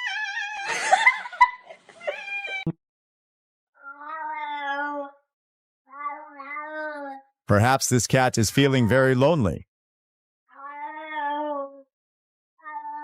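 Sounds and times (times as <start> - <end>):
cat meowing: 0.0 - 0.7, 2.1 - 2.7, 3.8 - 5.2, 5.9 - 7.1, 12.6 - 13.0.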